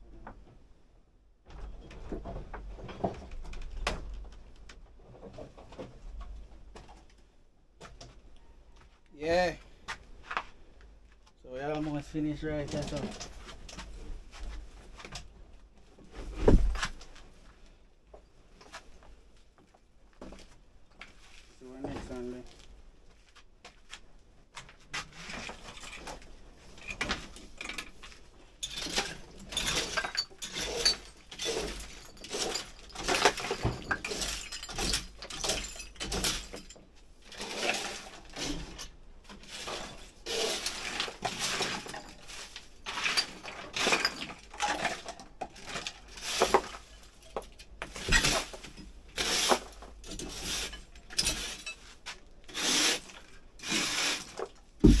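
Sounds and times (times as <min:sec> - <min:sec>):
household junk clattering and clinking: 0:01.5 - 0:07.2, 0:11.6 - 0:15.4, 0:24.7 - 0:55.0.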